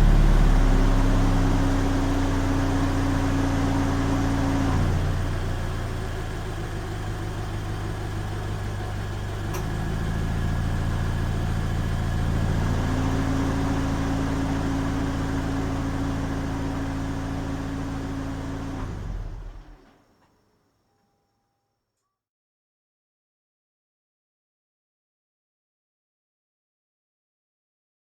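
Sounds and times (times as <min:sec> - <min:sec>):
car engine idling: 0:00.0 - 0:04.0.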